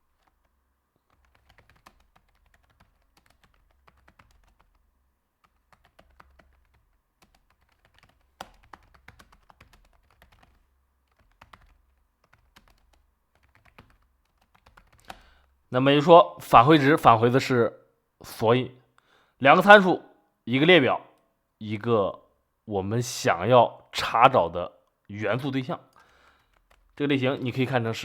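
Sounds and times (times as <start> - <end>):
keyboard typing clicks: 1.0 - 4.8, 5.4 - 15.5, 26.0 - 27.0.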